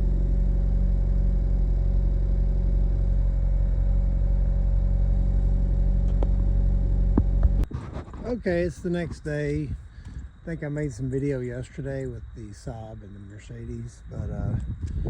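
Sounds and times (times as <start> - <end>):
car engine running: 0.0 - 7.7.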